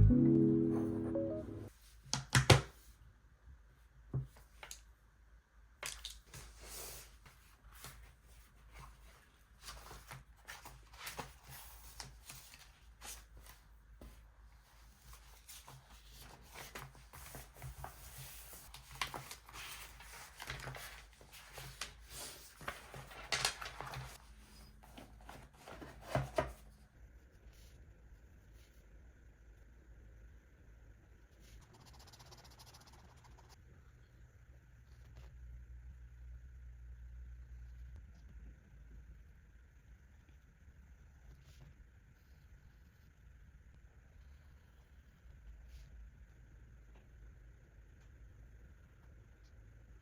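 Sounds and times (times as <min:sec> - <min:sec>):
paper rustling: 0:15.1 - 0:26.6.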